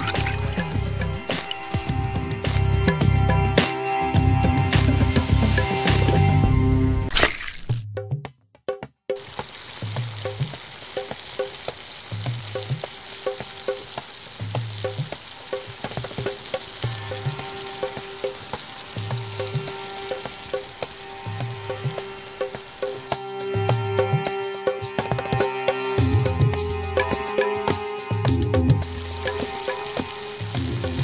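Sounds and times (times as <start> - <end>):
food sizzling in a frying pan: 0.0 - 3.1, 9.2 - 31.0
soft music with steady beat: 0.0 - 6.8, 12.2 - 31.0.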